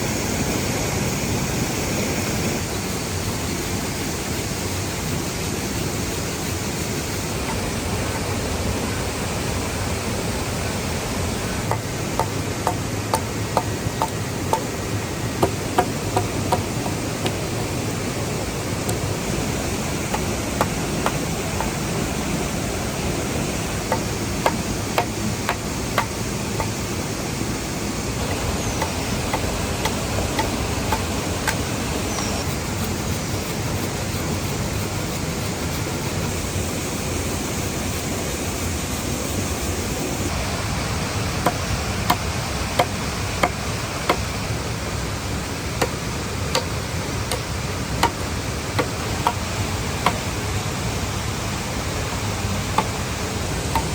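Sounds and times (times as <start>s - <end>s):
waterfall rushing: 0.0s - 53.9s
hand tool knocking on wood: 11.6s - 14.7s, 15.4s - 17.4s, 20.1s - 21.8s, 23.9s - 26.8s, 28.3s - 32.3s, 47.3s - 48.2s.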